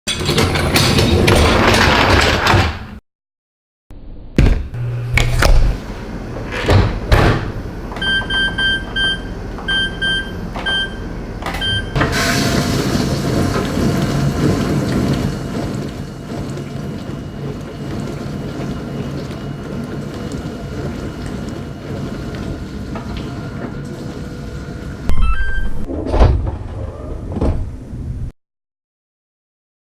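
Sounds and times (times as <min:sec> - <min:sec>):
dishwasher water washing: 0:05.2 - 0:25.1
dishwasher clunks and knocks: 0:06.6 - 0:08.3
control panel beeps: 0:25.1 - 0:25.9.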